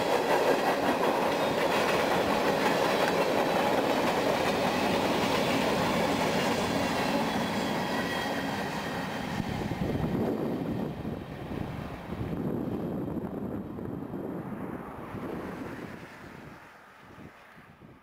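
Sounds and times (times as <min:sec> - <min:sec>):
train wheels clattering on rails: 0:00.0 - 0:10.7.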